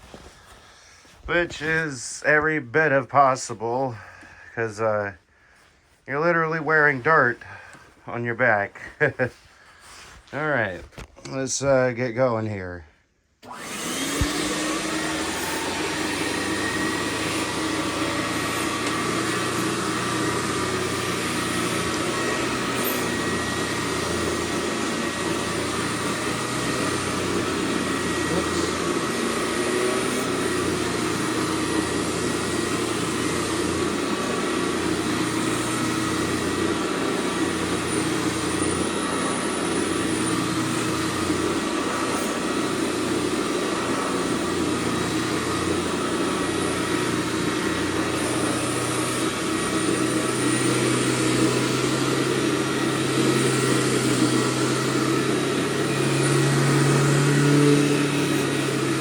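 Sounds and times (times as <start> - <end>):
backpack vacuum running: 13.4 - 59.0.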